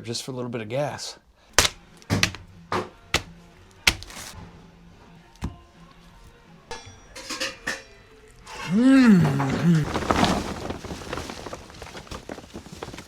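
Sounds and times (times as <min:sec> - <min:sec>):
sharp knocks or chops: 0:01.6 - 0:04.4.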